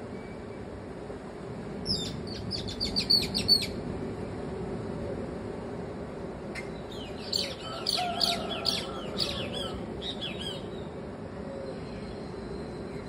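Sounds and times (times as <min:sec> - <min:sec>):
birds chirping and squawking: 0:06.9 - 0:10.8.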